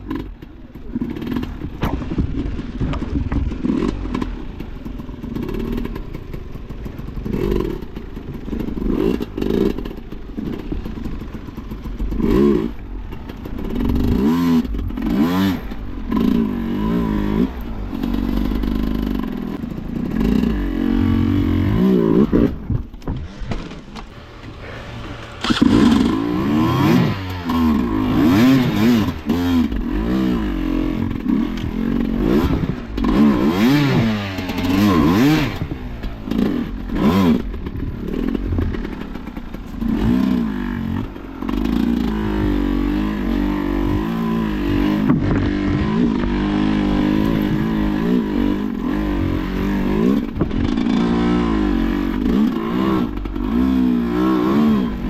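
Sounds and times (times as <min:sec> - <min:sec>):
motorcycle engine revving: 0:00.0 - 0:55.0
knocks and clatter: 0:00.1 - 0:12.3, 0:44.8 - 0:48.1.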